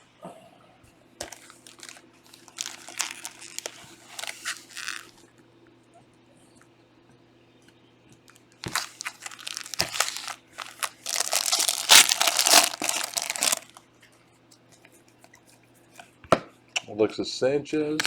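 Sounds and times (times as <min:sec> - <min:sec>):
wrapper tearing and crinkling: 0:01.2 - 0:05.2, 0:08.6 - 0:13.8.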